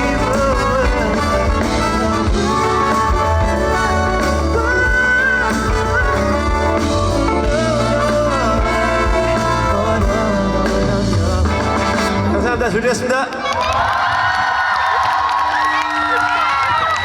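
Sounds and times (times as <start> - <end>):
live band music: 0.0 - 13.2.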